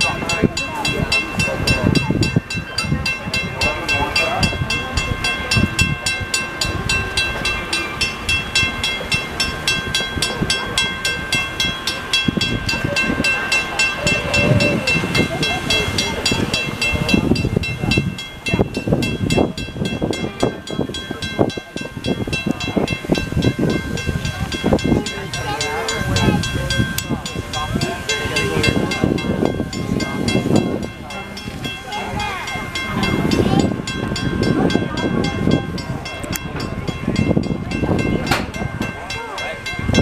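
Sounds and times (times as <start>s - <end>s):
steady high-pitched tone: 0.0s - 40.0s
train cars rolling on rails: 0.0s - 40.0s
sharp clanks: 38.2s - 39.0s.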